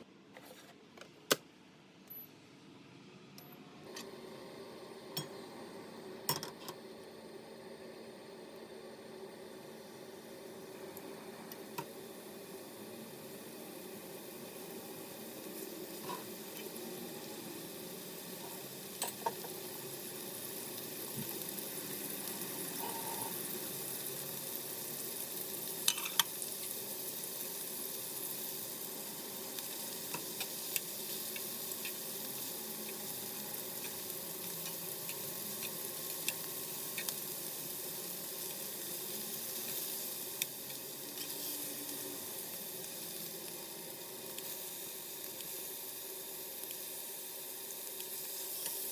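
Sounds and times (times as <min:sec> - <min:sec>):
food sizzling in a frying pan: 0:04.0 - 0:48.9.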